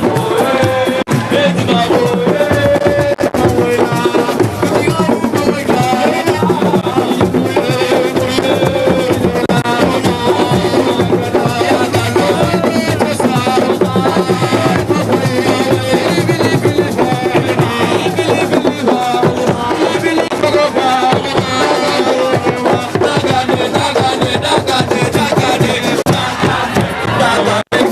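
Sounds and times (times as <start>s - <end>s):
music with hand drums: 0.0s - 27.9s.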